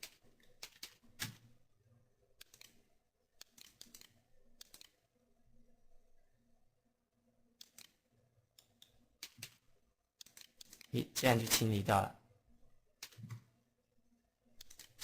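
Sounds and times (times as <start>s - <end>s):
computer mouse clicks: 2.4s - 2.8s, 3.4s - 5.0s, 7.6s - 9.6s, 10.2s - 10.9s, 14.6s - 15.0s.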